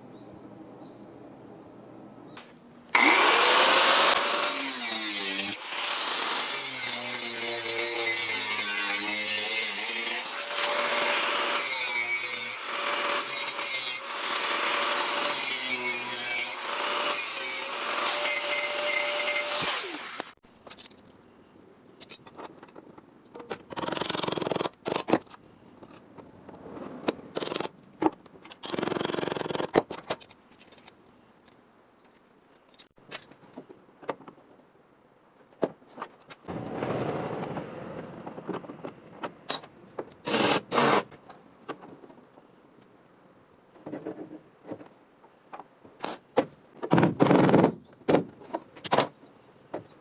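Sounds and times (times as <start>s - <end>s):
power tool cutting sheet steel: 3.0s - 20.4s.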